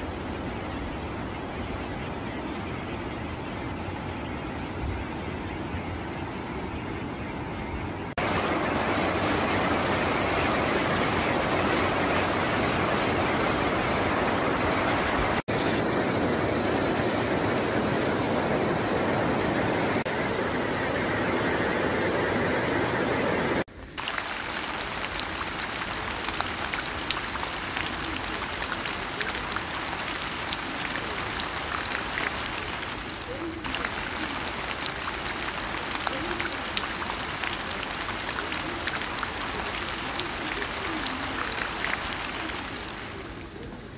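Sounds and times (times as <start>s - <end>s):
steady rain: 8.0s - 43.9s
stream rushing over boulders: 8.1s - 15.8s, 23.7s - 43.6s.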